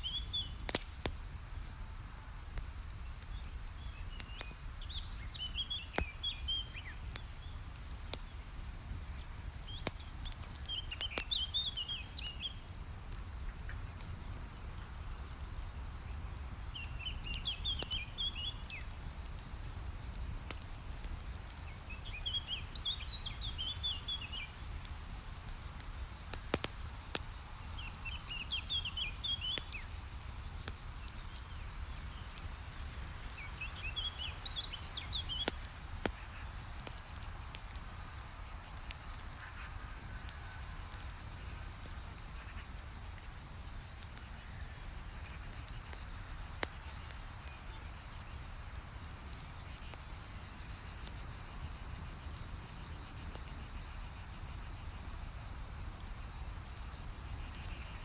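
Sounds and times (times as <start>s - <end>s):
campfire crackling and popping: 0.0s - 58.0s
songbird twittering: 33.3s - 35.6s.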